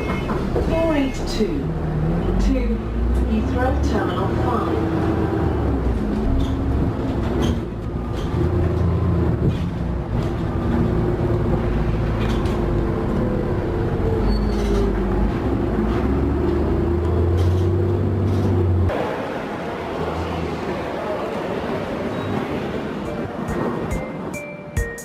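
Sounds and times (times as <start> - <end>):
vehicle interior rumble: 0.0 - 19.0.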